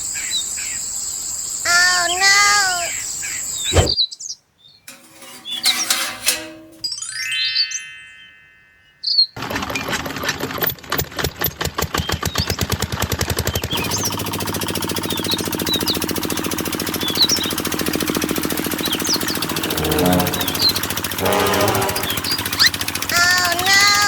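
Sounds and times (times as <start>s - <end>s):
small diesel engine starting: 9.4s - 24.0s.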